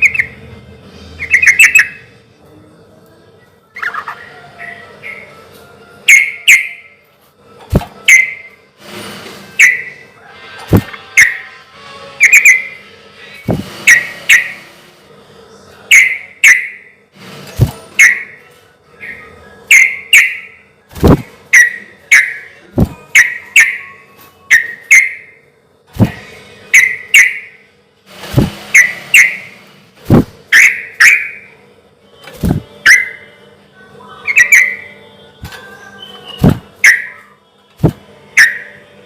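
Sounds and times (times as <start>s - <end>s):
bulbul singing whistled phrases: 0.0s - 0.4s, 1.2s - 2.0s, 6.1s - 7.0s, 8.1s - 8.6s, 9.6s - 10.0s, 12.2s - 12.8s, 19.0s - 20.6s, 30.6s - 31.5s, 34.2s - 35.0s, 35.6s - 37.4s.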